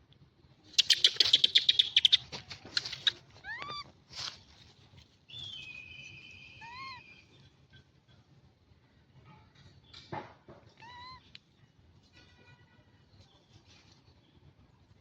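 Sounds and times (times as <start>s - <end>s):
monkeys chattering: 0.8s - 2.2s, 2.8s - 3.2s
monkey squeaky calls: 0.8s - 3.8s, 6.6s - 7.2s.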